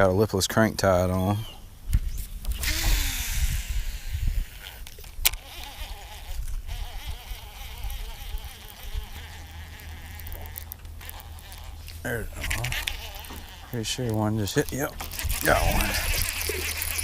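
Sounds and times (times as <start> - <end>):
wind rumbling on microphone: 1.7 - 9.2, 15.0 - 17.0
fishing line hiss: 2.2 - 17.0
fishing reel whirring: 2.5 - 17.0.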